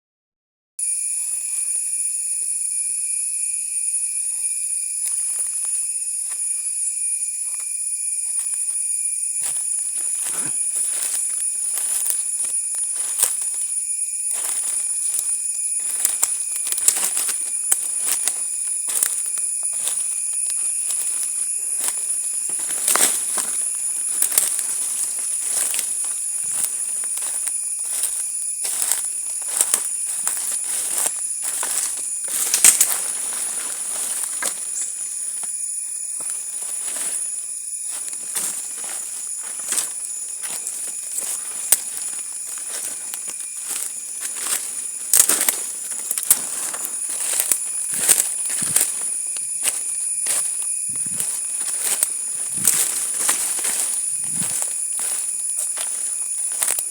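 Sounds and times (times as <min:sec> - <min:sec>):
high-pitched insect drone: 0:00.8 - 0:56.9
crackling footsteps: 0:04.1 - 0:56.9
crackling clicks: 0:31.0 - 0:33.0, 0:43.7 - 0:48.9.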